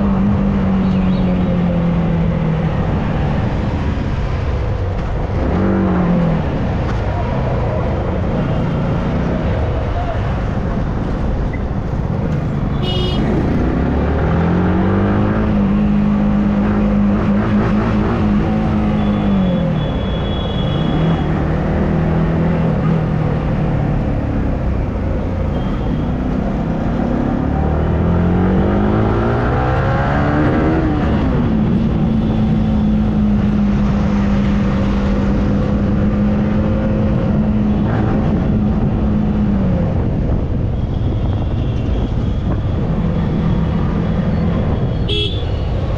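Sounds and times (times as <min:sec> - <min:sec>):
wind and road noise: 0:00.0 - 0:45.9
motorcycle engine: 0:11.8 - 0:16.3.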